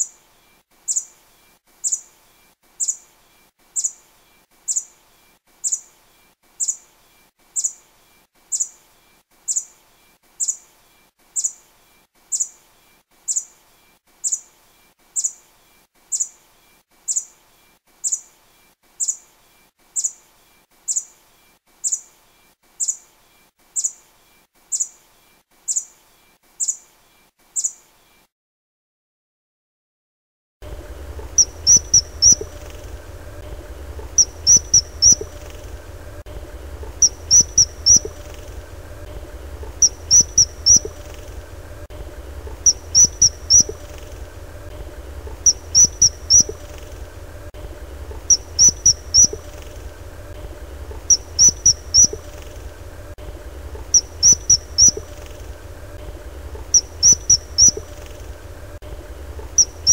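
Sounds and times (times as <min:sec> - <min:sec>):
steady low hum: 0:30.6 - 0:59.9
small animal chirping: 0:31.1 - 0:36.2, 0:36.8 - 0:59.9.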